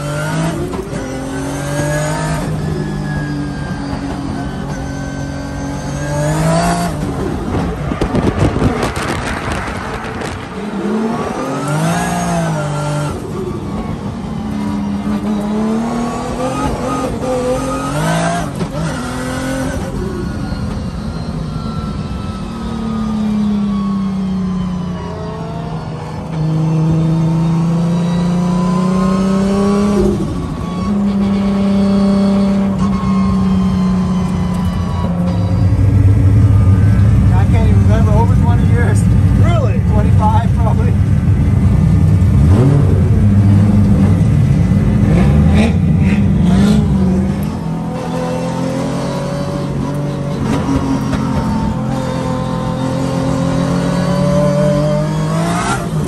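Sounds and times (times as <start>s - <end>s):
car engine revving: 0.0s - 56.0s
wind noise: 7.0s - 11.6s.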